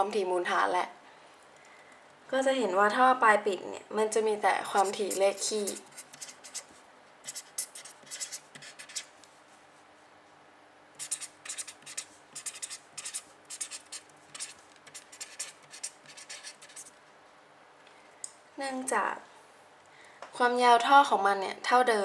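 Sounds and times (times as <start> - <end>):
pen scratching on paper: 4.7 - 6.7, 7.3 - 9.1, 11.0 - 16.9.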